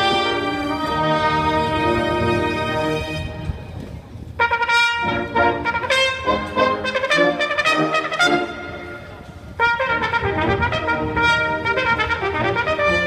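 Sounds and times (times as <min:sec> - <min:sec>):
solo trumpet playing short notes: 0:00.0 - 0:03.6, 0:04.4 - 0:13.0.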